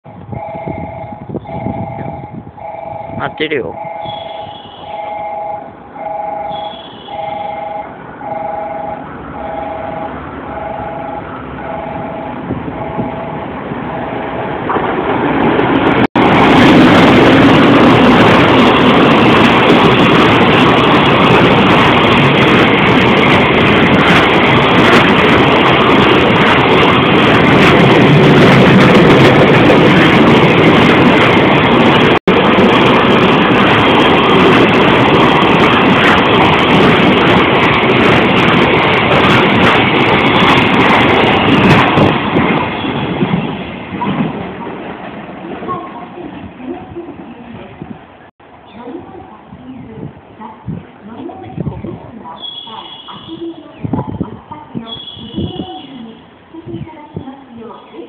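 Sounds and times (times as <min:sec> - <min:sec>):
freight train passing: 0:00.1 - 0:58.0
steel wheels clattering on rails: 0:12.8 - 0:47.2.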